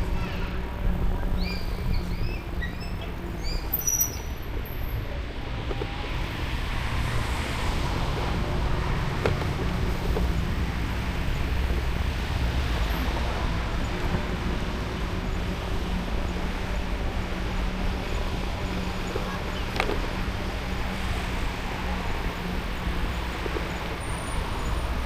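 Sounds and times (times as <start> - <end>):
wind rumble on microphone: 0.0 - 3.8
passing road traffic: 0.0 - 25.0.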